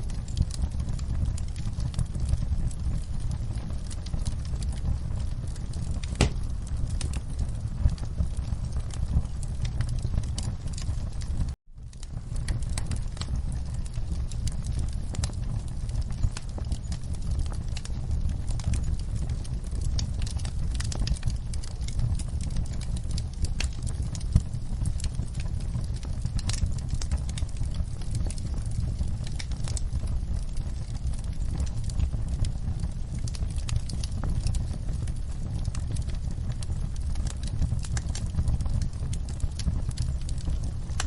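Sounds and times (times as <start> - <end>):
low rumble of burning: 0.0 - 41.0
wood fire crackling and popping: 0.0 - 41.0.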